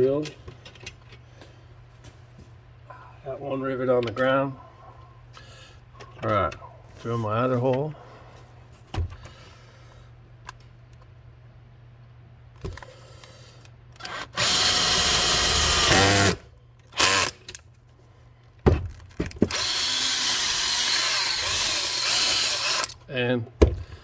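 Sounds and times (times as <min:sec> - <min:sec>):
power drill drilling: 0:14.1 - 0:16.4, 0:17.0 - 0:17.3, 0:19.5 - 0:23.0.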